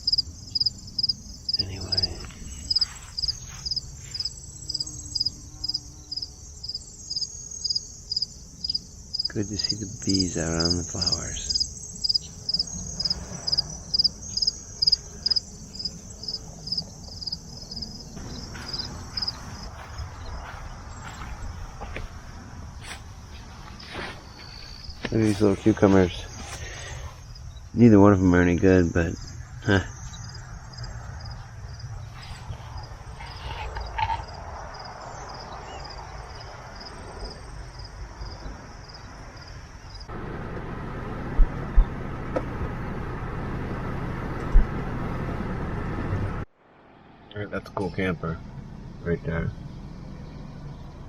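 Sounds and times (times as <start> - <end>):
high insect trill: 0.0 - 40.1
crickets chirping: 0.0 - 40.2, 46.7 - 51.0
low rumble: 12.6 - 26.4, 40.1 - 47.4.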